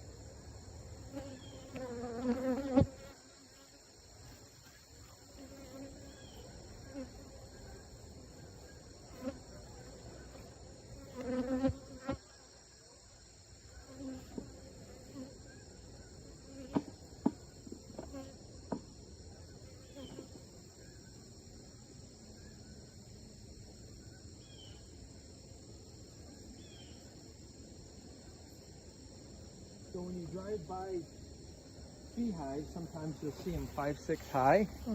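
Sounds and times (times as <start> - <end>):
bees buzzing: 1.0 - 12.2.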